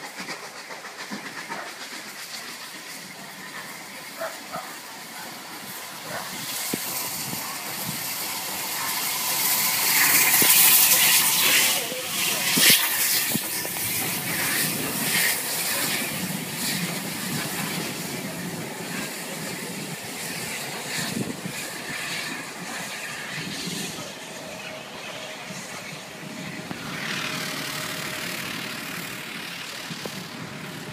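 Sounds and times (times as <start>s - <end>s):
train coaches rumbling and clattering: 0.0s - 30.9s.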